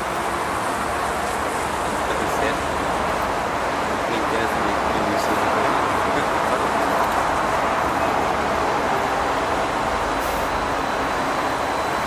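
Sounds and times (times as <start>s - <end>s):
train wheels rumble and hiss: 0.0s - 12.0s.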